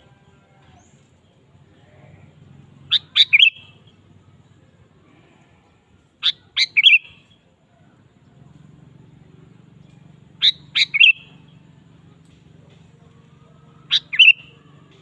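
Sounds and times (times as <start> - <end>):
faint low hum: 0.0 - 15.0
bulbul whistled calls with trill: 2.8 - 4.3, 6.2 - 7.5, 9.8 - 11.8, 12.6 - 15.0.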